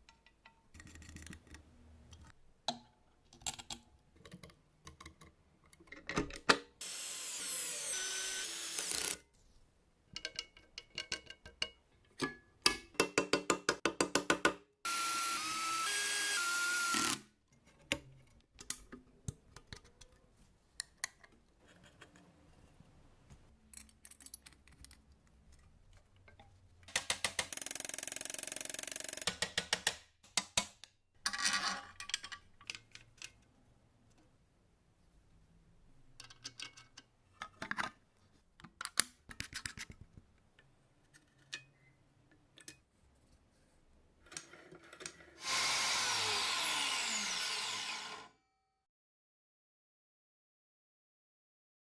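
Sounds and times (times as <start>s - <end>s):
power tool whining: 14.9s - 17.2s, 45.4s - 48.3s.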